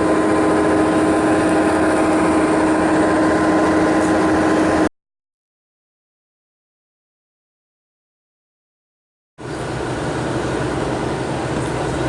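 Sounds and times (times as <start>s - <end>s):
boat engine humming: 0.0s - 4.9s, 9.4s - 12.0s.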